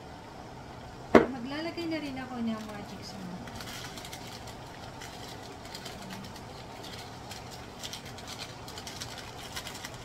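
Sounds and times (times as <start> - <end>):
foil sachet crinkling: 2.4 - 10.0.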